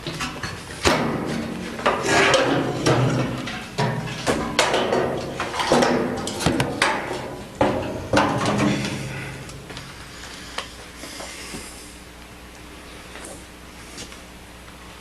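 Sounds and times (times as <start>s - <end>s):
sharp ringing knocks and clunks: 0.0s - 9.4s.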